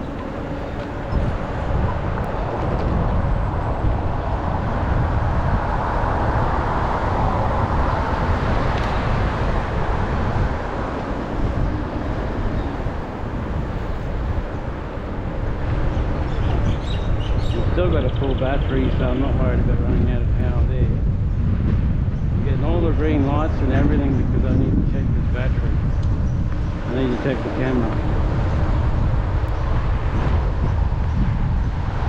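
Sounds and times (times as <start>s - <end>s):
bike tyre noise: 0.0s - 19.2s
wind rushing over microphone: 0.0s - 32.0s.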